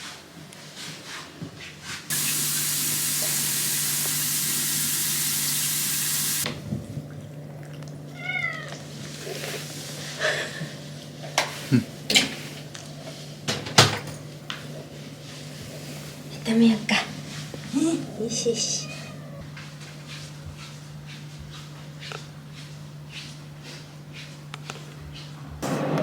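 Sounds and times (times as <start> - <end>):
loud steady hiss: 2.1 - 6.4
cat meowing: 8.1 - 8.8, 18.6 - 19.5.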